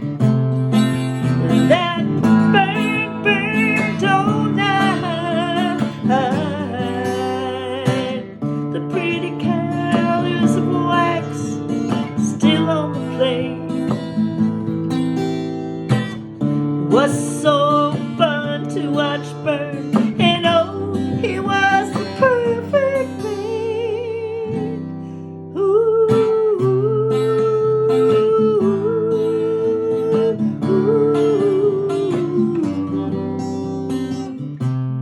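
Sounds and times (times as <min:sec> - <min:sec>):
acoustic guitar picked and strummed: 0:00.0 - 0:35.0.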